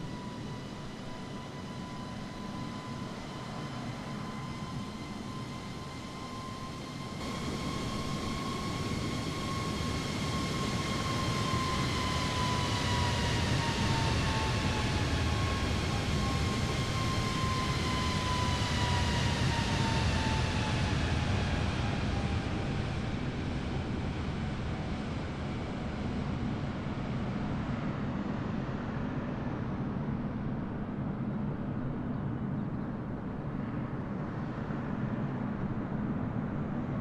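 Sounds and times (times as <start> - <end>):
jet engines roaring: 0.0 - 25.8
high engine whine: 0.0 - 29.5.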